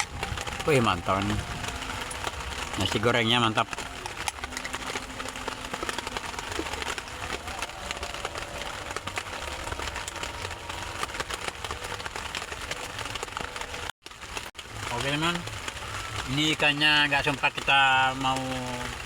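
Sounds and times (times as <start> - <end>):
rain pattering: 0.0 - 19.0.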